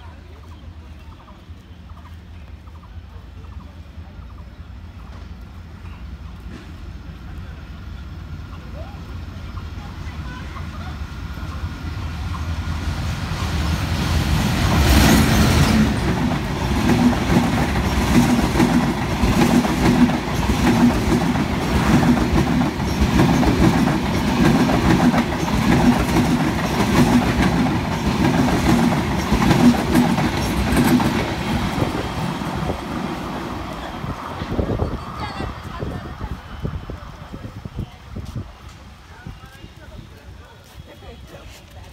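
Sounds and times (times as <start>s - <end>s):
locomotive passing: 0.0s - 41.9s
wheels clacking over rail joints: 11.4s - 35.6s.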